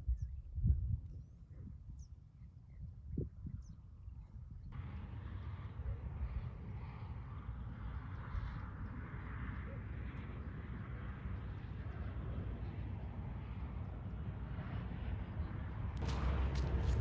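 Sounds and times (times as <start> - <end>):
wind buffeting microphone: 0.0 - 2.1, 9.8 - 17.0.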